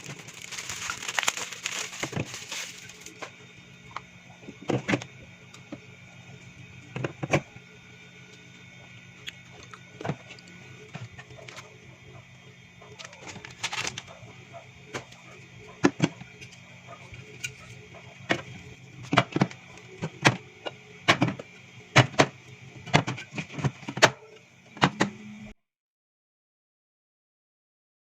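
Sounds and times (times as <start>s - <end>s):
items clacking and knocking: 0.0s - 3.4s
fridge humming: 0.0s - 25.6s.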